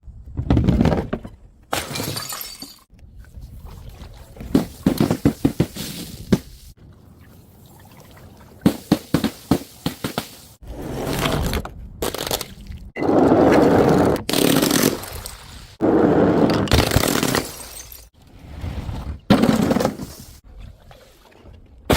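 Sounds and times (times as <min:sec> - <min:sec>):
glass bottles smashing: 0:01.8 - 0:02.9, 0:16.8 - 0:18.1.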